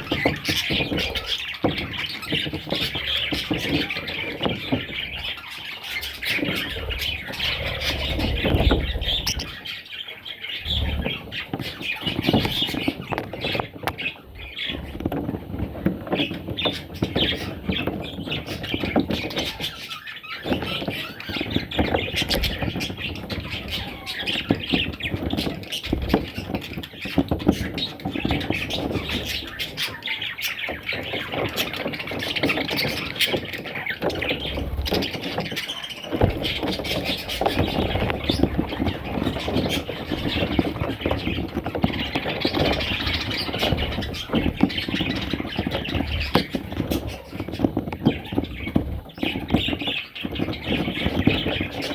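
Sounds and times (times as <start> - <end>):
budgerigars squawking and chirping: 0.0 - 51.9
low thumps: 6.4 - 9.6.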